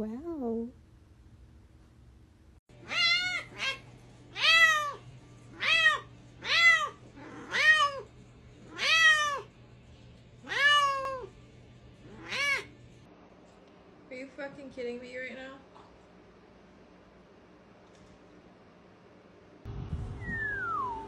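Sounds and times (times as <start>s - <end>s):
cat meowing: 2.8s - 3.8s, 4.4s - 8.1s, 8.7s - 9.5s, 10.4s - 11.3s, 12.1s - 12.7s.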